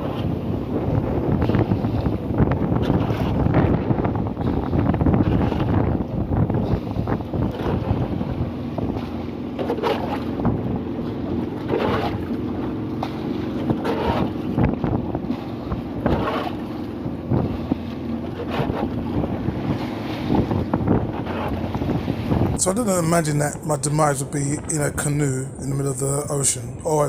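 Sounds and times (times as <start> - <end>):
low droning hum: 0.0 - 27.0
wind buffeting microphone: 0.0 - 27.0
short splashes or knocks: 8.8 - 22.6.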